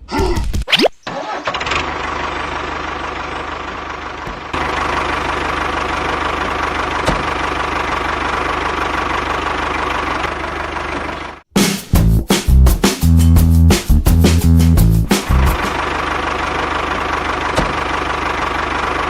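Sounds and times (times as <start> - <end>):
small engine running: 1.2 - 11.4, 15.6 - 19.0.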